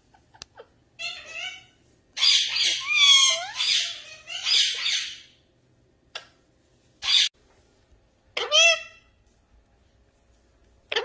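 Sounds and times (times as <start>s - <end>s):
parrot squawking: 0.6s - 5.4s, 7.0s - 7.3s, 8.4s - 9.1s.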